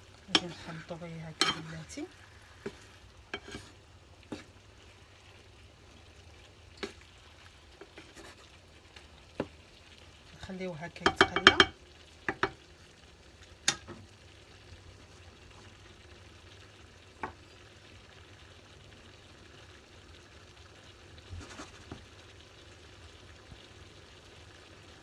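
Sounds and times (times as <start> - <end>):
rice sizzling in oil: 0.0 - 25.0
utensil knocking against pan: 1.4 - 1.7, 11.0 - 12.6.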